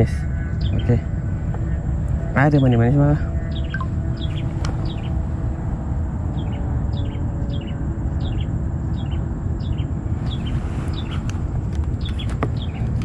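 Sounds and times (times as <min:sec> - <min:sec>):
low rumble: 0:00.0 - 0:08.4
bird calling double notes: 0:02.3 - 0:05.2.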